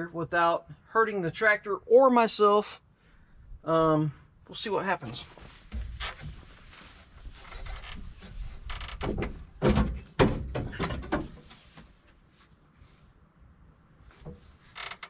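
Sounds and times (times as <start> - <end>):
knocks and clunks: 5.7 - 6.5, 7.4 - 11.6.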